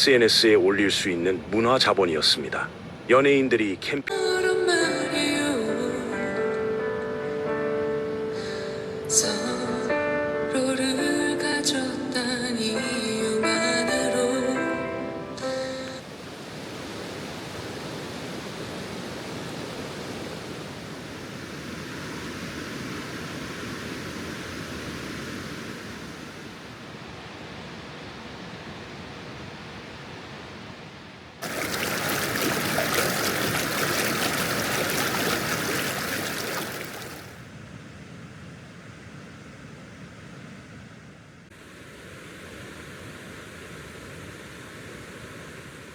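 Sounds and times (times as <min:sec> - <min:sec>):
river water rushing: 0:31.4 - 0:37.5.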